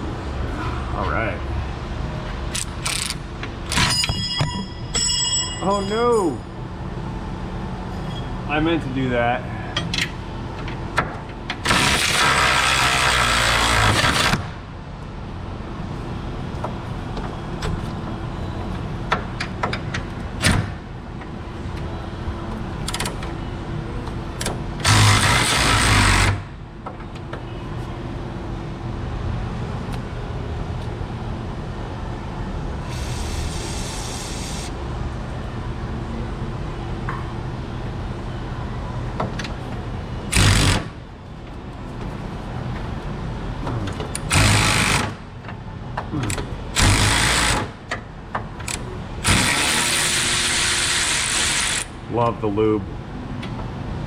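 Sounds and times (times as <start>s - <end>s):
power tool bursts: 11.6s - 14.4s, 24.8s - 26.4s, 40.3s - 40.9s, 44.3s - 45.2s, 46.8s - 47.7s, 49.2s - 51.9s.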